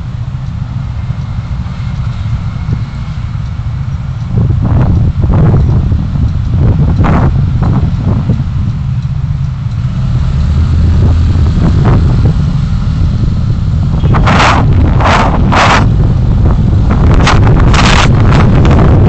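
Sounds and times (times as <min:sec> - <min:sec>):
road and wind rumble: 0:00.0 - 0:19.0
wind buffeting the microphone: 0:04.2 - 0:09.0, 0:10.4 - 0:19.0.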